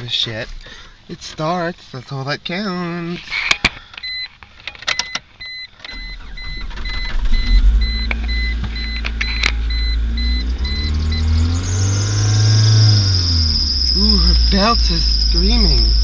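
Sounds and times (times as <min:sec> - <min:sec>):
dashboard warning chime beeping: 0:04.0 - 0:04.3, 0:04.9 - 0:16.0
car engine starting and idling: 0:05.7 - 0:16.0
clicks before engine start: 0:05.8 - 0:09.6
accessory belt squealing: 0:12.4 - 0:16.0.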